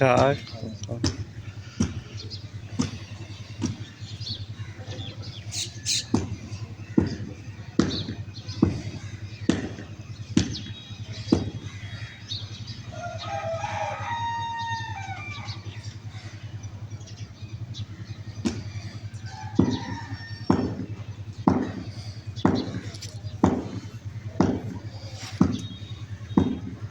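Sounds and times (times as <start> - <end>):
sharp knocks: 7.0 - 8.9, 9.5 - 11.7, 19.6 - 24.8, 25.4 - 26.8
rooster crowing: 12.8 - 15.8, 18.9 - 21.0.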